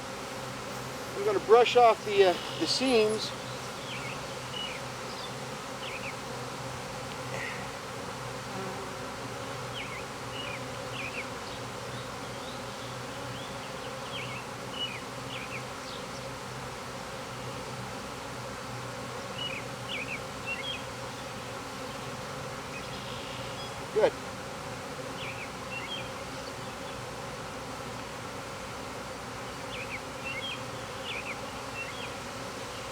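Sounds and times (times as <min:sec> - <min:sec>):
bees buzzing: 0:00.0 - 0:32.9
faint chirps: 0:00.7 - 0:04.8.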